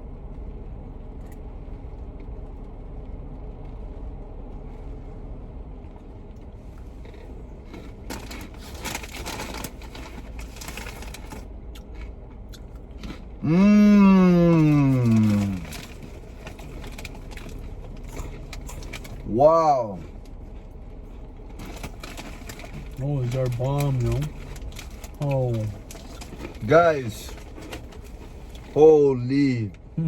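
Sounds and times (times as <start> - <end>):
low background hum: 0.0 - 30.0
crunching snacks: 6.4 - 29.2
person saying mmm: 13.4 - 15.7.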